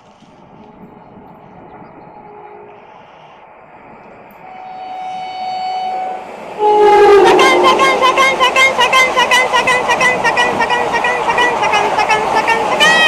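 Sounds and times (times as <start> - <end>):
train running noise: 0.0 - 13.0
train horn: 2.1 - 3.3, 4.4 - 13.0.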